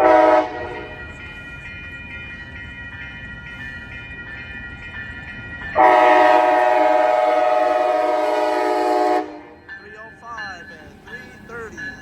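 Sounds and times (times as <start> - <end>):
locomotive horn blast: 0.0 - 0.9, 5.8 - 9.6
faint steady high tones: 8.7 - 12.0.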